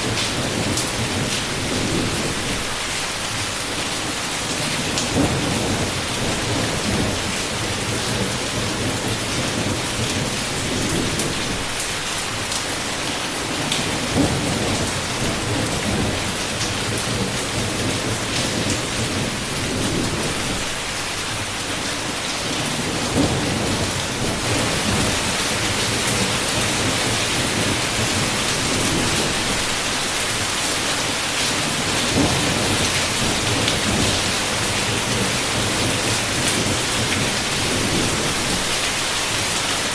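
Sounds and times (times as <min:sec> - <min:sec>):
heavy rain on a window: 0:00.0 - 0:39.9
low rolls of thunder: 0:04.6 - 0:11.8, 0:13.4 - 0:20.8, 0:22.5 - 0:29.8, 0:31.5 - 0:38.8.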